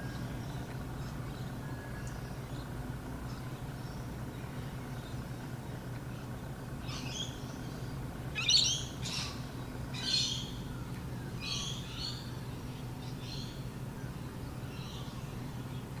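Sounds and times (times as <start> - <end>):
steady low hum: 0.0 - 16.0
bird chirping: 6.8 - 13.6.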